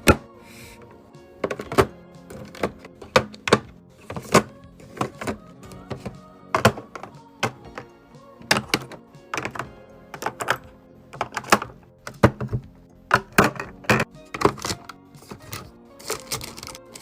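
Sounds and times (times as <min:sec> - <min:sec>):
background music: 0:00.0 - 0:17.0
containers knocking being set down: 0:01.4 - 0:05.4.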